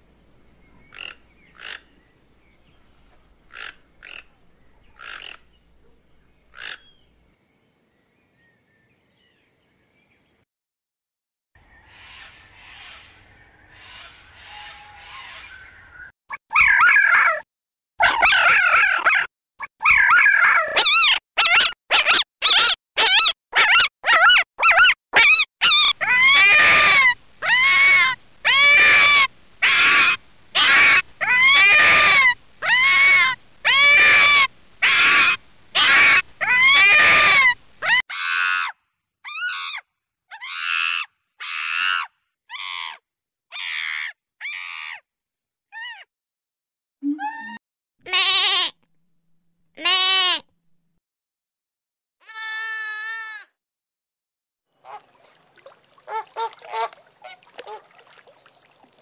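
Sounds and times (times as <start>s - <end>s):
fox yelping and barking: 16.5s - 17.4s, 18.0s - 38.7s, 39.3s - 45.0s, 56.1s - 57.9s.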